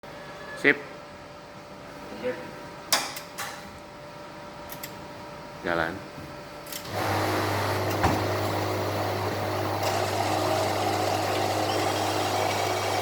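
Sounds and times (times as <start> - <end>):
machine motor hum: 6.8 - 13.0.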